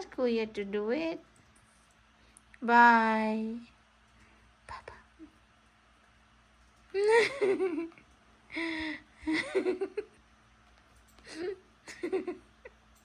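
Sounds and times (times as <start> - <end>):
child whimpering and giggling: 6.9 - 8.0, 11.2 - 12.4.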